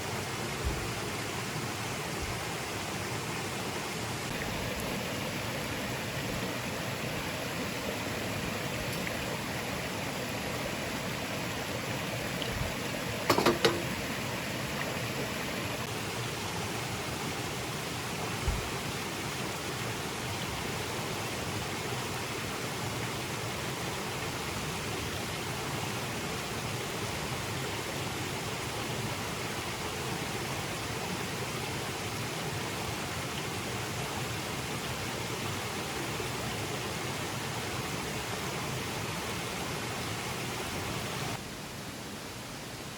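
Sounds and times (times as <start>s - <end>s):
stream water rushing: 0.0s - 42.9s
dull knock: 13.3s - 13.9s.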